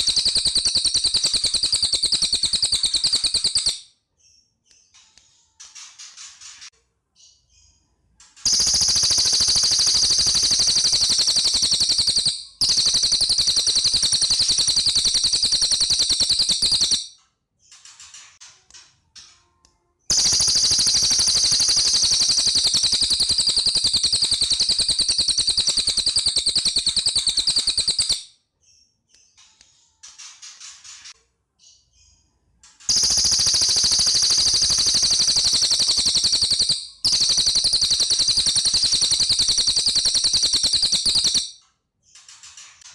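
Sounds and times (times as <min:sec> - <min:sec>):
songbird high-pitched trills: 0:00.0 - 0:03.8, 0:08.5 - 0:17.2, 0:20.1 - 0:28.3, 0:32.9 - 0:41.6
faint bird twitters: 0:00.0 - 0:17.1, 0:17.7 - 0:42.9.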